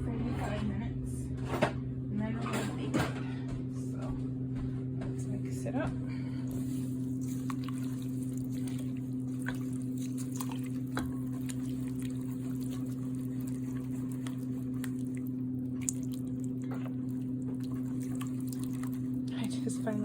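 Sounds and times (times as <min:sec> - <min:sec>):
steady low hum: 0:00.0 - 0:20.0
wet squishing of stirred mix: 0:06.1 - 0:20.0.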